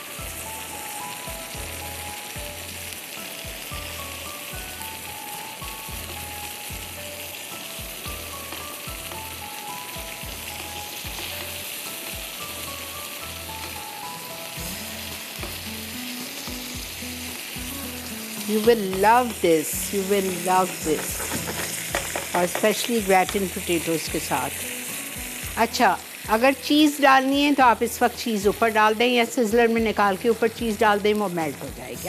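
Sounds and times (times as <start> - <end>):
background music with a beat: 0.0 - 2.6, 3.2 - 18.0, 24.8 - 25.6
chicken sizzling in a pan: 0.0 - 32.0.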